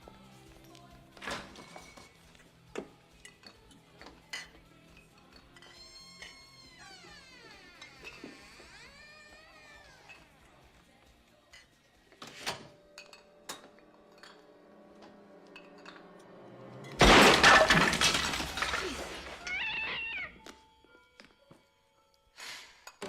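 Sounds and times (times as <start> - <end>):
loud crash: 16.8 - 19.5.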